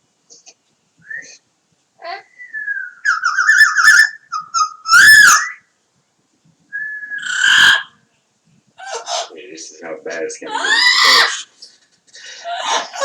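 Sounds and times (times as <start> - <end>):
parrot warbling whistle: 2.3 - 5.7, 6.8 - 8.0
parrot rising-and-falling call: 3.0 - 5.6, 7.1 - 8.0, 10.5 - 11.5
parrot harsh screech: 4.9 - 5.6, 7.2 - 8.0, 10.5 - 11.5.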